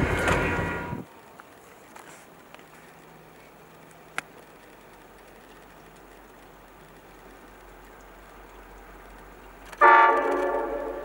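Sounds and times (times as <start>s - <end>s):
approaching train rumble: 0.0s - 11.0s.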